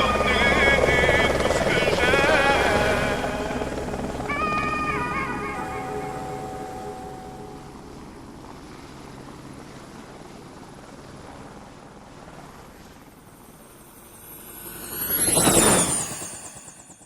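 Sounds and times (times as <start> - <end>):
low engine rumble: 0.0 - 16.4.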